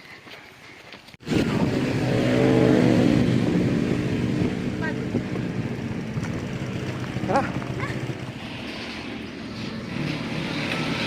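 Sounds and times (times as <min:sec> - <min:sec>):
motorcycle engine running: 0:01.2 - 0:08.5.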